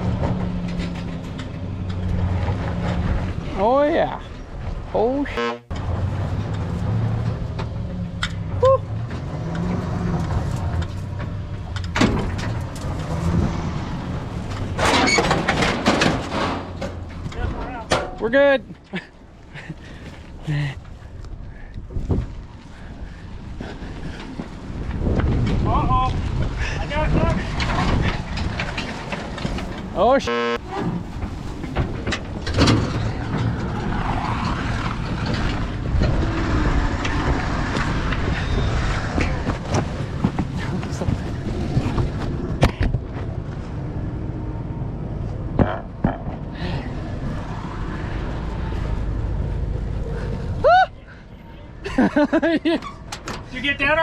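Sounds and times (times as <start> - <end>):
clattering noise: 0.0 - 3.4, 14.2 - 18.3, 27.2 - 30.0, 30.6 - 43.6
clanks and rattles: 0.0 - 3.5, 5.7 - 20.0, 23.6 - 43.7, 52.0 - 53.6
truck engine rumbling: 0.0 - 54.0.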